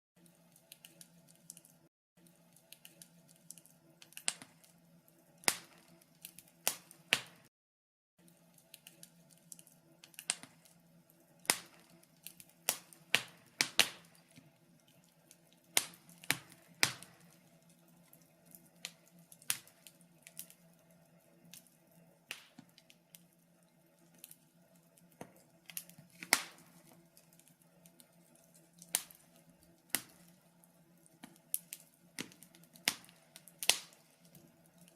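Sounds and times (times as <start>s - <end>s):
wood fire crackling: 0.2s - 7.5s, 8.2s - 34.9s.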